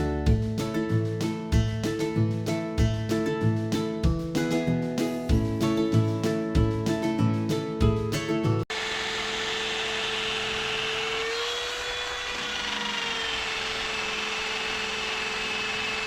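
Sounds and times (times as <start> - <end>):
short snatch of music: 0.0 - 8.6
power sander running: 8.7 - 16.0.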